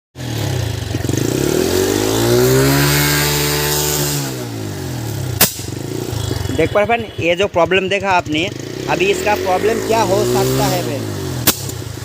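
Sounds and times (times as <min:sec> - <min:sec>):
motorcycle engine revving: 0:00.2 - 0:12.0
exhaust backfire pop: 0:05.3 - 0:05.8, 0:11.4 - 0:11.9
man talking: 0:06.5 - 0:11.1.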